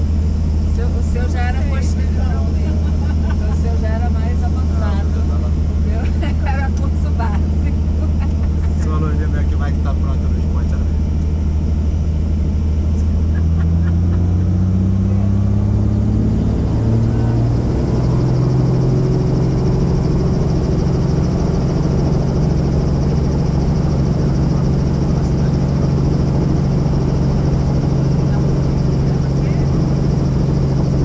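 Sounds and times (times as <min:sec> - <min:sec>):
helicopter engine and rotor: 0:00.0 - 0:31.0.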